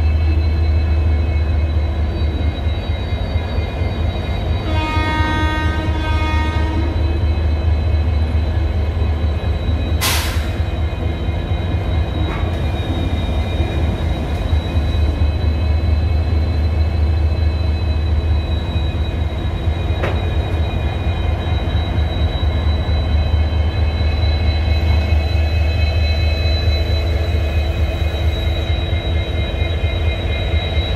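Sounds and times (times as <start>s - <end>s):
diesel locomotives idling: 7.4s - 25.5s.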